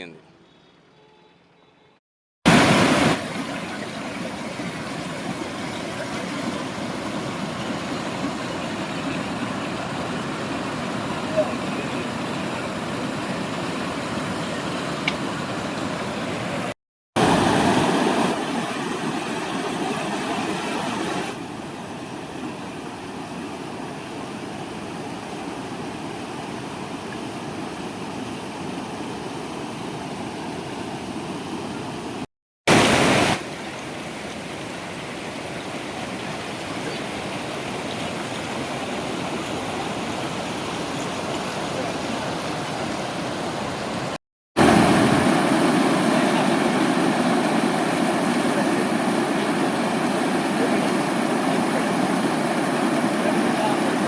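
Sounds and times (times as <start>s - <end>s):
water rushing through gates: 32.7s - 54.0s.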